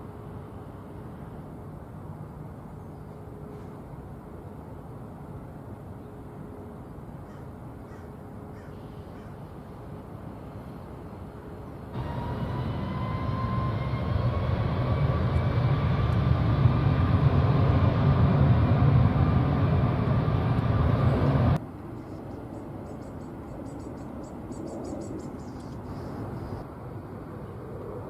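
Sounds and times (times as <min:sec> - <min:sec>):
jet engine roar with whine: 0:09.5 - 0:28.0.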